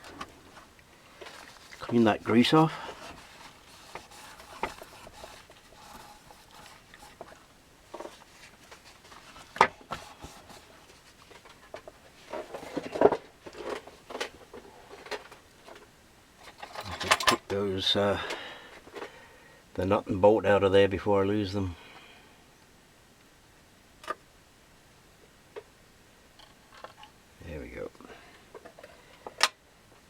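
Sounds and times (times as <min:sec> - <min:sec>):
quiet rubbing and rustling: 0:00.0 - 0:19.2.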